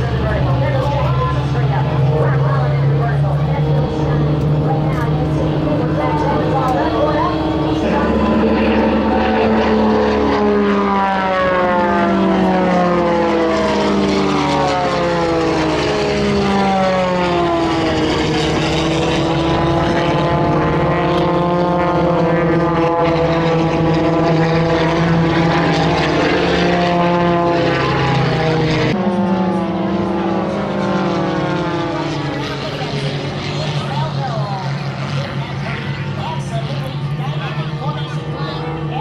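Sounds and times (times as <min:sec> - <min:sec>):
propeller airplane engines droning: 0:00.0 - 0:39.0.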